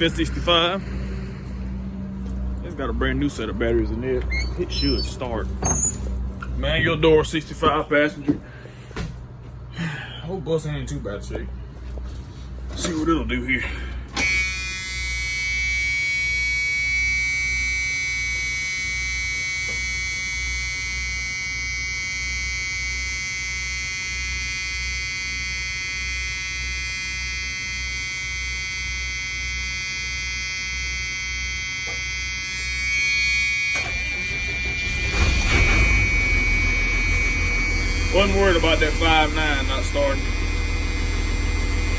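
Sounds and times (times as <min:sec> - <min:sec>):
high warning buzzer: 0:00.0 - 0:07.8, 0:13.6 - 0:41.9
diesel bus engine idling: 0:00.0 - 0:09.0, 0:33.4 - 0:41.9.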